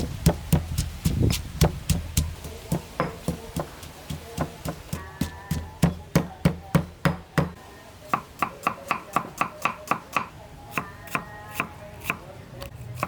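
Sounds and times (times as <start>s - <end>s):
knife chopping on cutting board: 0.0s - 7.6s.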